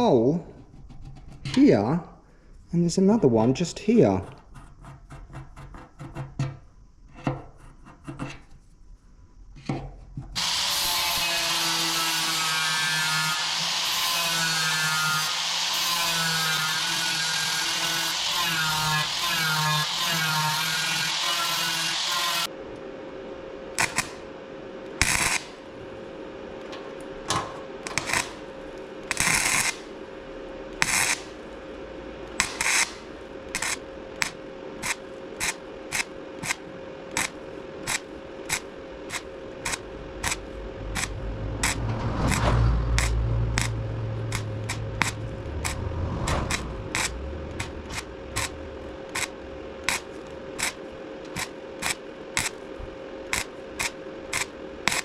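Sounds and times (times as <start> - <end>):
faint hum: 0.0 - 55.0
power tool cutting metal: 10.4 - 22.5, 27.9 - 28.4, 37.9 - 52.5
short hissing bursts: 10.4 - 22.5.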